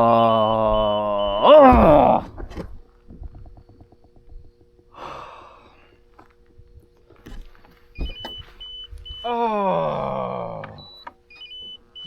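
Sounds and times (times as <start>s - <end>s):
man groaning: 0.0s - 2.3s, 9.2s - 10.8s
trolling motor humming: 0.0s - 12.0s.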